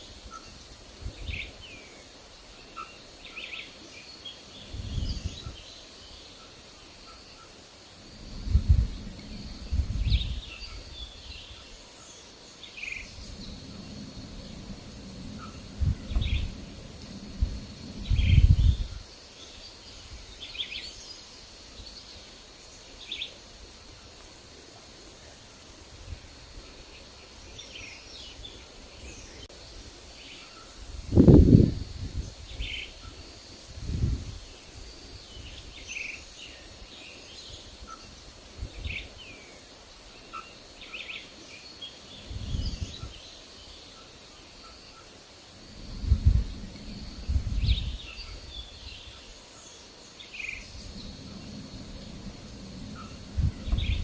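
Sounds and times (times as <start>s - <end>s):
birds chirping: 0.0s - 23.4s, 40.2s - 54.0s
wind gusting on microphone: 0.1s - 1.8s, 4.6s - 5.7s, 8.0s - 11.8s, 12.8s - 20.6s, 30.8s - 35.9s, 37.4s - 39.3s, 42.1s - 43.3s, 45.5s - 49.4s, 50.3s - 54.0s.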